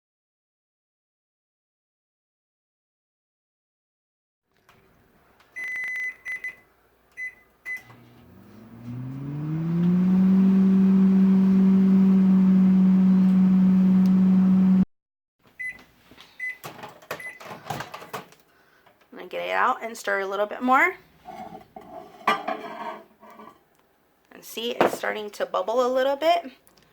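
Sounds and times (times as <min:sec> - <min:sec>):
microwave beeps: 0:05.6 - 0:06.6, 0:07.2 - 0:08.9, 0:15.6 - 0:15.8, 0:16.4 - 0:16.6, 0:17.2 - 0:17.4
microwave oven humming: 0:07.7 - 0:14.8.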